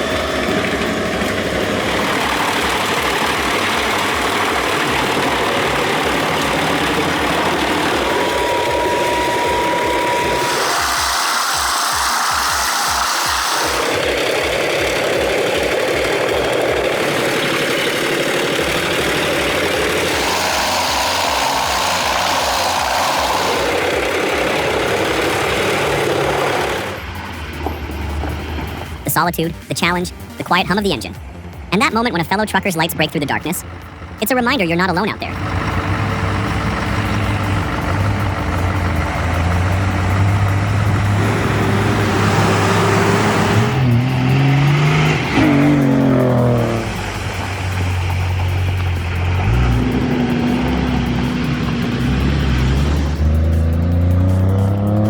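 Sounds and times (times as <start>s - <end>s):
higher steady tone: 0.0s - 14.2s, 29.1s - 35.6s
engine running with regular thump: 0.0s - 29.0s, 35.3s - 55.0s
road noise: 0.0s - 55.0s.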